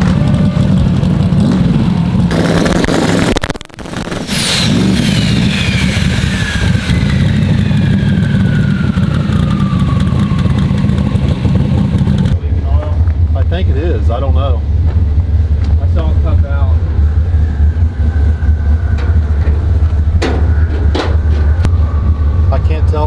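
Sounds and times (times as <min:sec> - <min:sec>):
car engine running: 0:00.0 - 0:23.0
turbo whistle: 0:04.1 - 0:12.0.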